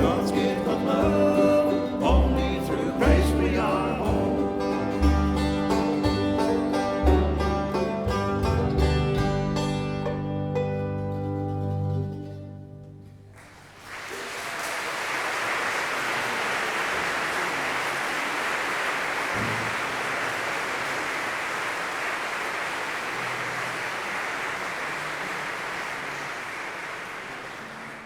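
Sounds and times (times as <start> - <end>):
audience applauding: 13.3 - 28.0.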